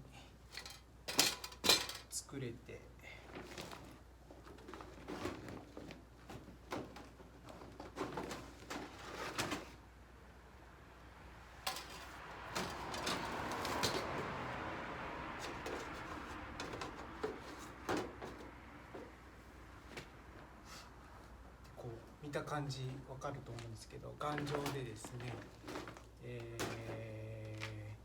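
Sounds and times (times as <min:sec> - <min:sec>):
metal parts sliding and scraping: 0:00.4 - 0:02.1, 0:11.6 - 0:14.2
metal clinks and knocks: 0:00.5 - 0:02.1.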